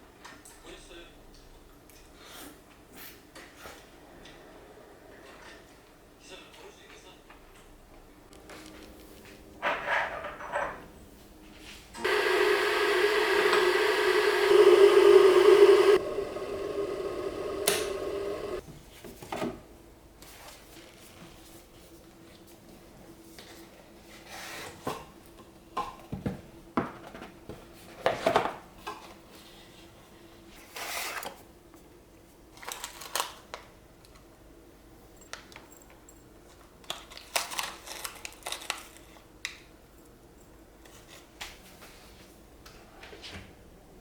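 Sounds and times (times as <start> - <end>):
faint steady hum: 12.0 - 18.6.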